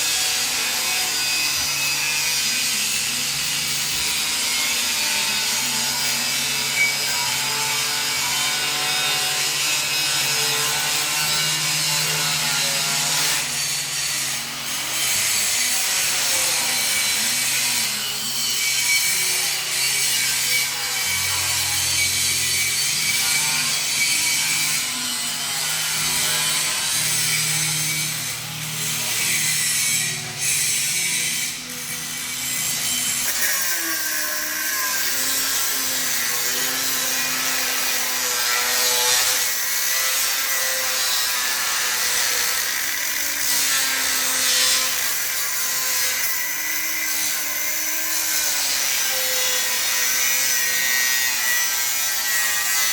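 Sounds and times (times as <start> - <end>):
angle grinder cutting steel: 0.0 - 52.9.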